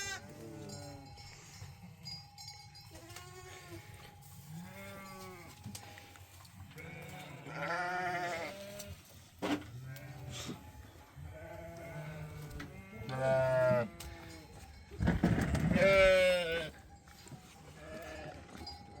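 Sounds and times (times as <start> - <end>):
sheep or goats bleating: 0.0 - 1.6, 2.9 - 5.6, 6.7 - 9.1, 9.7 - 14.5, 15.4 - 16.8, 17.7 - 18.5.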